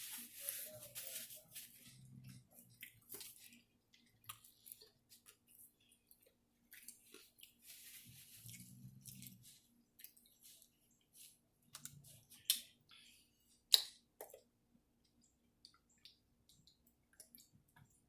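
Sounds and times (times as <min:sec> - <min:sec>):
mouth clicks and smacks chewing: 0:11.6 - 0:18.0.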